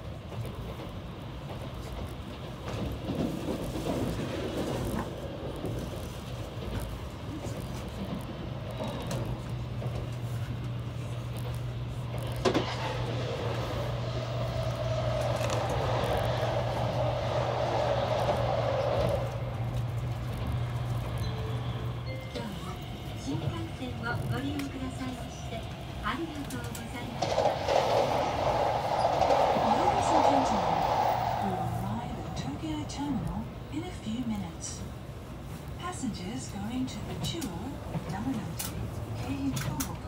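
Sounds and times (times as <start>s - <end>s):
train interior rumble and hum: 0.0s - 40.0s
rushing noise: 12.4s - 21.1s, 25.3s - 33.8s.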